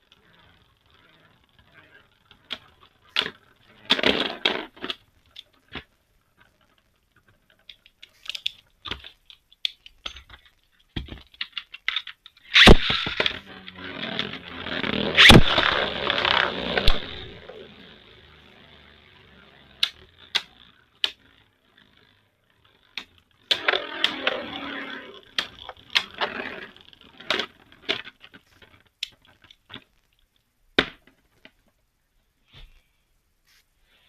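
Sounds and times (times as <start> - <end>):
plastic toy tops clicking: 7.6 - 29.8
rattling scrape: 12.6 - 20.6, 23.5 - 27.6.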